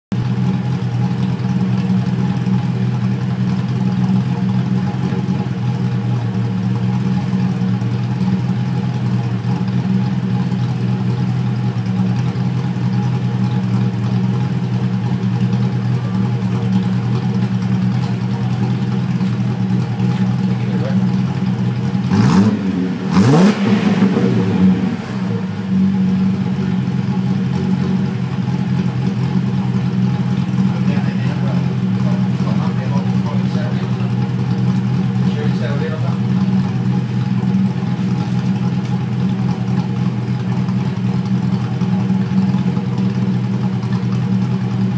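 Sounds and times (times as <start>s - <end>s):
car engine idling: 0.1s - 44.9s
engine revving: 20.0s - 39.7s.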